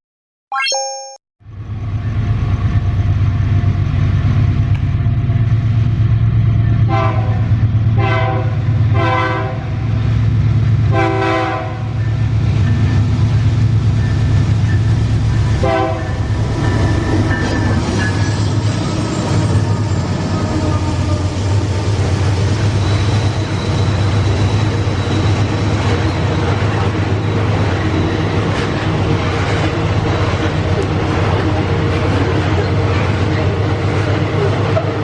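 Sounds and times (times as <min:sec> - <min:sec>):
multi-note train horn blasts: 0:06.9 - 0:09.8, 0:10.9 - 0:12.0, 0:15.6 - 0:16.3.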